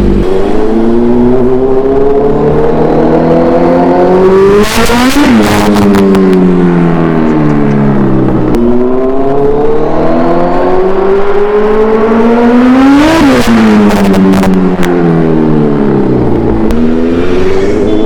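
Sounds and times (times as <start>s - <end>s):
motorcycle engine revving: 0.0s - 18.0s
exhaust cracks: 5.1s - 8.9s.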